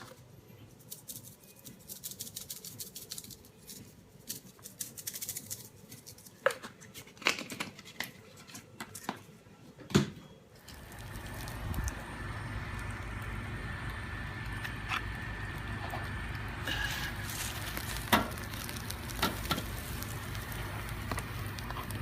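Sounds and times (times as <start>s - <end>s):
seasoning pattering from shaker: 0.8s - 6.2s, 10.7s - 22.0s.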